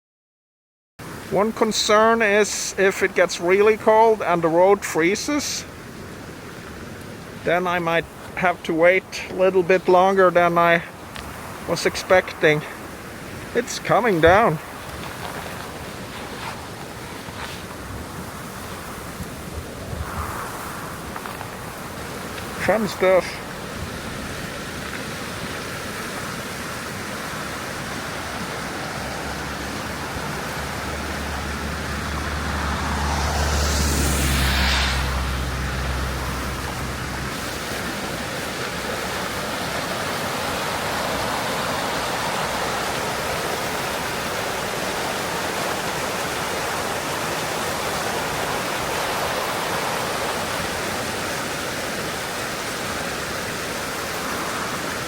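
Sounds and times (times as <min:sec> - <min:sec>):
snowstorm hiss: 0:01.0 - 0:55.0
vehicle passing on slushy road: 0:11.0 - 0:55.0.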